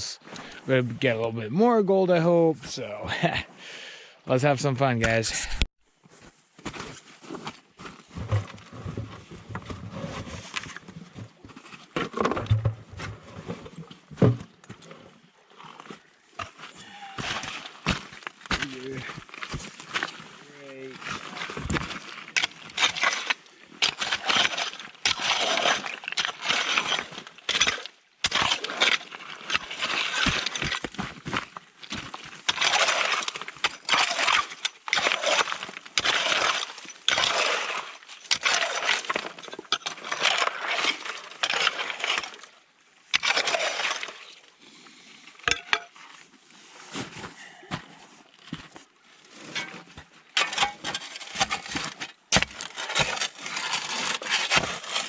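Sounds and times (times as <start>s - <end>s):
shovel scraping into gravel: 17.1s - 42.4s, 49.4s - 55.0s.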